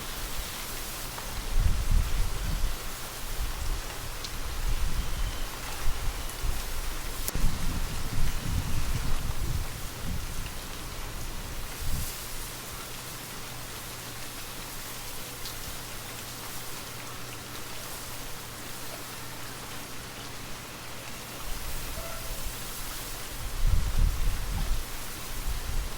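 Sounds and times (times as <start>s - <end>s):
gentle rain falling: 0.0s - 25.9s
rain drop ticks: 3.7s - 7.5s, 13.6s - 17.9s
low gust of wind: 4.4s - 12.2s, 21.5s - 25.9s.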